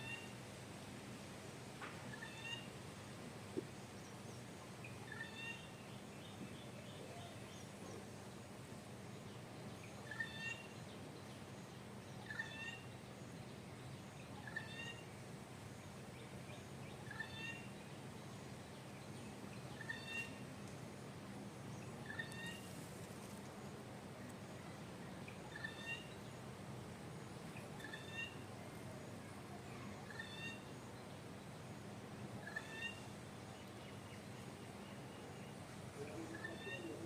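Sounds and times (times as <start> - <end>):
bird calling: 5.0 - 5.8, 12.2 - 12.9, 22.0 - 22.8, 25.3 - 26.2, 27.6 - 28.4, 32.4 - 33.1, 34.9 - 37.0.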